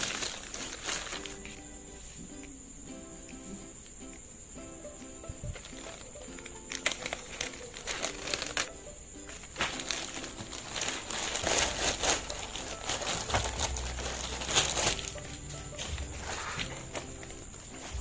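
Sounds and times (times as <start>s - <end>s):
packaging crinkling and rustling: 0.0s - 1.6s, 5.5s - 18.0s
soft background music: 0.0s - 18.0s.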